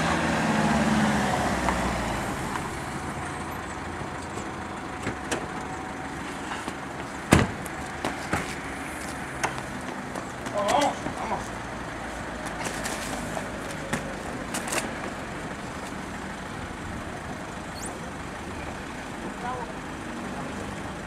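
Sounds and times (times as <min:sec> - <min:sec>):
street background noise: 0:00.0 - 0:21.0.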